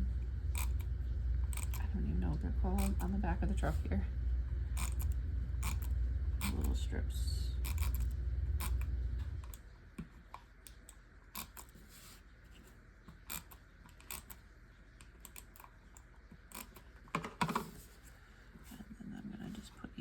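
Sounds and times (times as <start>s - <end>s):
scraping clicks: 2.8s - 3.2s.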